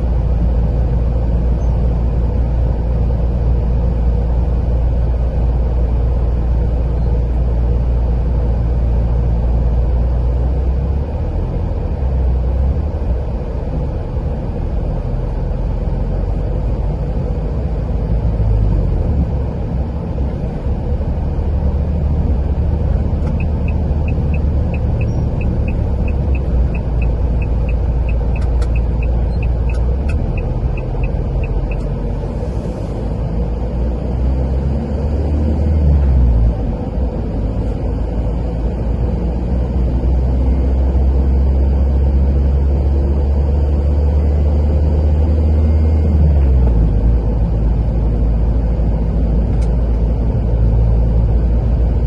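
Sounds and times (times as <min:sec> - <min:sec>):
car engine and tyre rumble: 0:00.0 - 0:52.0
light regular ticking: 0:23.2 - 0:31.9.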